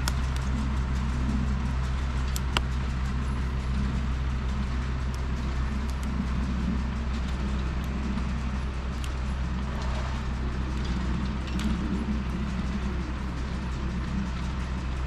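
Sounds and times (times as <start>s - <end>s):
engine humming: 0.0s - 15.0s
faint clicks: 0.0s - 15.0s.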